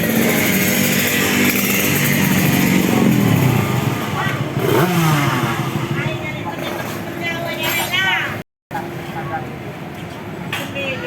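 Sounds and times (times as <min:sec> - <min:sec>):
racing motorcycle engines at high revs: 0:00.0 - 0:07.2.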